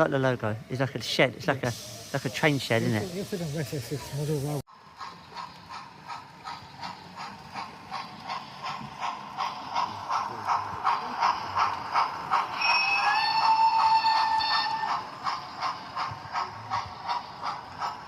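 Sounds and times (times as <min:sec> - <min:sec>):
model train clicking on track: 0:04.8 - 0:18.0.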